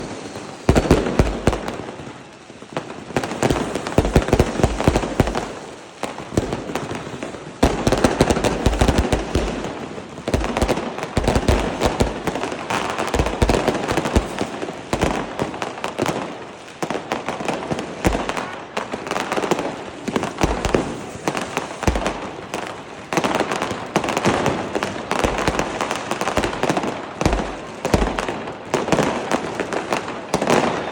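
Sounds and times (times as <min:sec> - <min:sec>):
firecrackers crackling: 0:00.0 - 0:30.9
deep firework booms: 0:19.4 - 0:30.9.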